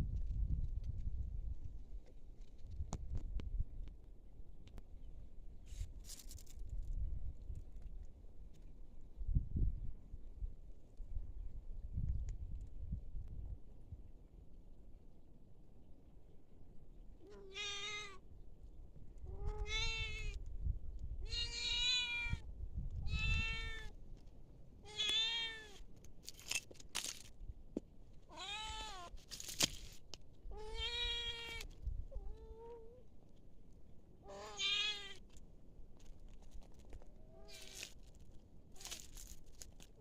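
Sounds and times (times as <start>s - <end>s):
cat meowing: 17.2s - 18.2s, 19.3s - 20.4s, 21.2s - 22.4s, 23.1s - 23.9s, 24.8s - 25.8s, 28.3s - 29.1s, 30.5s - 33.0s, 34.2s - 35.2s.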